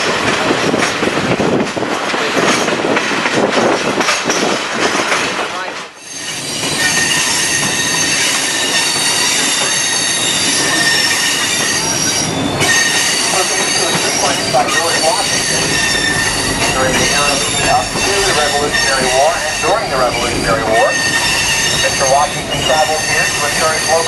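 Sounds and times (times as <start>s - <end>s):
rumble of moving train: 0.0s - 24.0s
train wheels squealing on rails: 5.2s - 24.0s.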